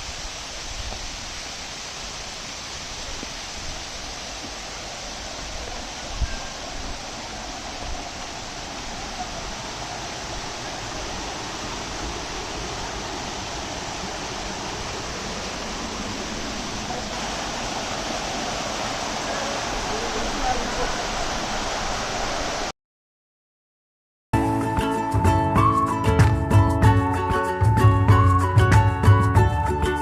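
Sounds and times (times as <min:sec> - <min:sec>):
waterfall rushing: 0:00.0 - 0:22.7.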